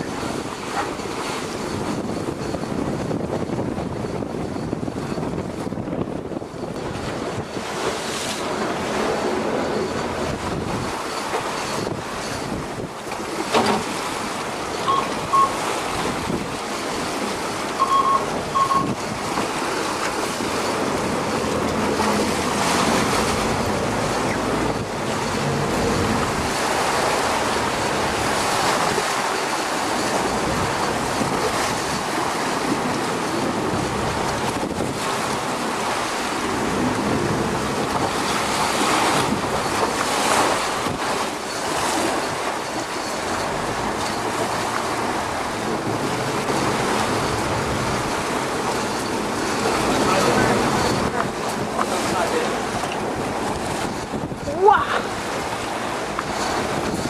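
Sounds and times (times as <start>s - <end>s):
sea rushing past boat: 0.0s - 57.0s
wind buffeting microphone: 0.0s - 57.0s
short high beeps: 14.8s - 15.7s, 17.8s - 19.0s.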